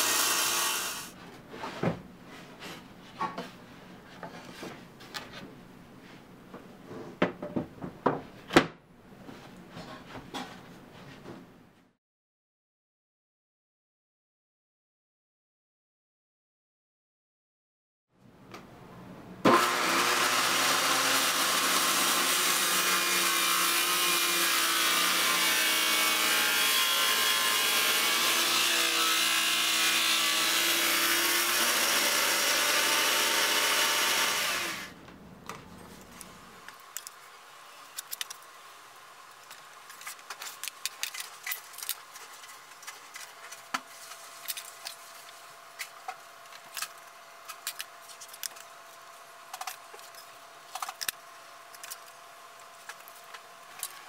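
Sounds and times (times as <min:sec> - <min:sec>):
electric saw cutting wood: 0:00.0 - 0:01.2, 0:19.4 - 0:35.0.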